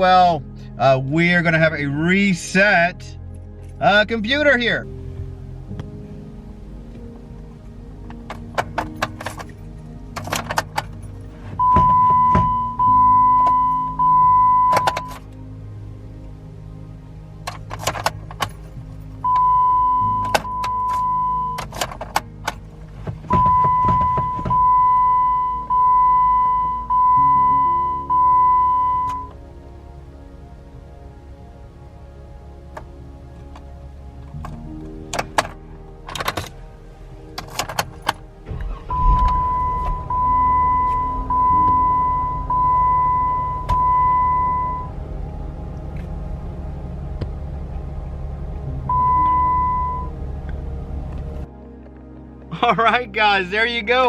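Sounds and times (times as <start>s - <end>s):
car engine starting and idling: 0.0s - 54.0s
soft background music: 0.0s - 54.0s
keys jangling: 8.3s - 11.3s
dashboard warning chime: 10.2s - 15.2s, 19.2s - 22.0s, 23.3s - 29.4s, 38.5s - 45.0s, 48.9s - 50.2s.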